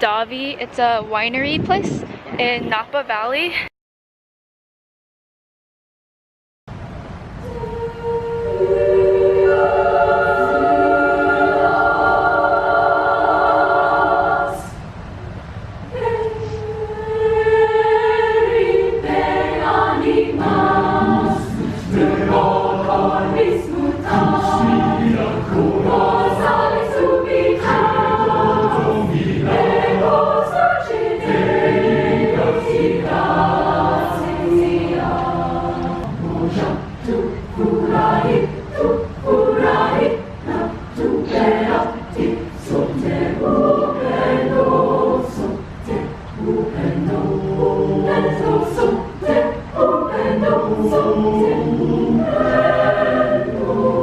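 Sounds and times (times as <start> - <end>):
choir singing: 7.4 - 14.9, 15.9 - 54.0.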